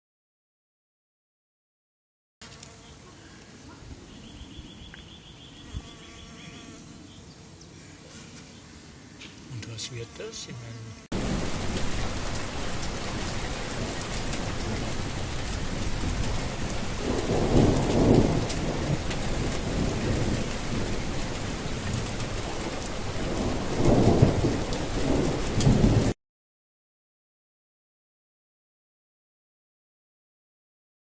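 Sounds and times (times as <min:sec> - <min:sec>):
heavy rain: 0:11.1 - 0:26.2
thunder rumbling: 0:11.1 - 0:26.2.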